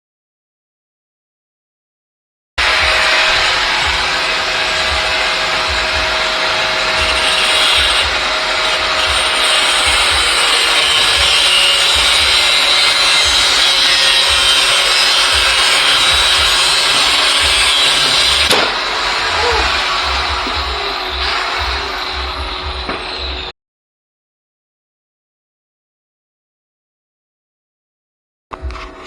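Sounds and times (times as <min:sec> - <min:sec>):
angle grinder grinding metal: 0:02.6 - 0:23.5.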